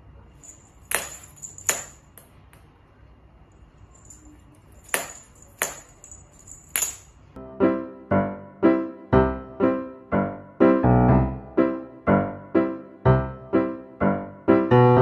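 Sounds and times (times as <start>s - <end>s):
faint steady background noise: 0.0s - 7.4s.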